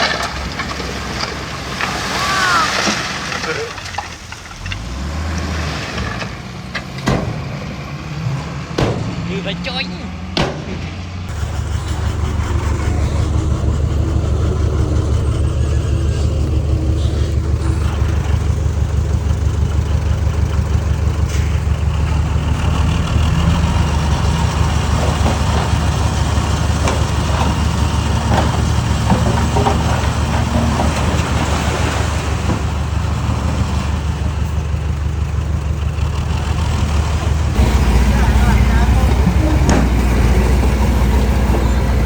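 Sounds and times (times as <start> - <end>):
heavy diesel engine running: 0.0 - 42.0
knocks: 10.4 - 11.0.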